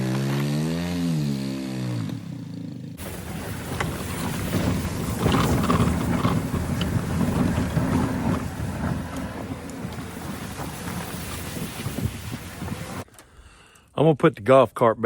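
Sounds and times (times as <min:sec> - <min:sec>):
wind buffeting microphone: 0:03.0 - 0:13.0.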